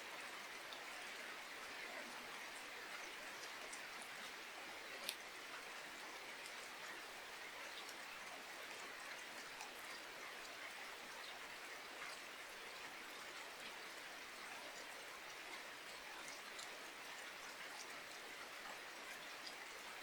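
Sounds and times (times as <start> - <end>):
faint rain falling: 0.0 - 20.0.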